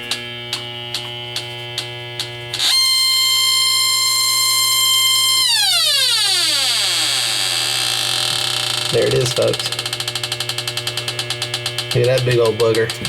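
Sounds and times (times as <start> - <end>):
continuous buzzing alarm tone: 0.0 - 13.0
leak detector ticking: 2.2 - 13.0.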